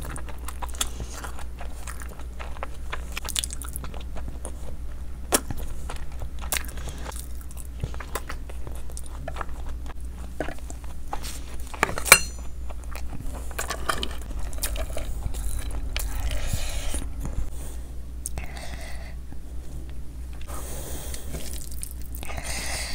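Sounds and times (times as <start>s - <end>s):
wet chewing and biting: 0.0s - 17.5s, 21.1s - 22.4s
sharp ringing clink: 12.1s - 12.5s.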